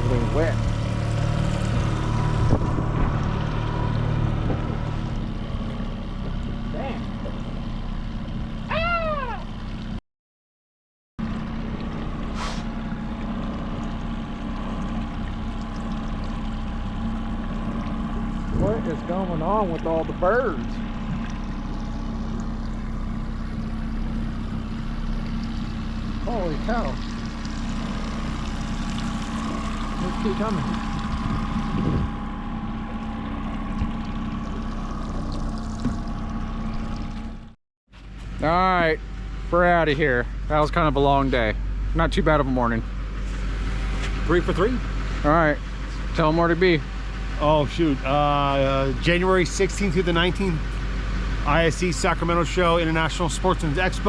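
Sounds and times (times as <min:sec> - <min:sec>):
boat motor humming: 0:00.0 - 0:10.0, 0:11.2 - 0:54.0
water noise: 0:00.0 - 0:10.0, 0:11.2 - 0:37.6
wind: 0:00.0 - 0:10.0, 0:11.2 - 0:54.0
brief rush of noise: 0:12.3 - 0:12.7
wind noise: 0:31.0 - 0:32.2.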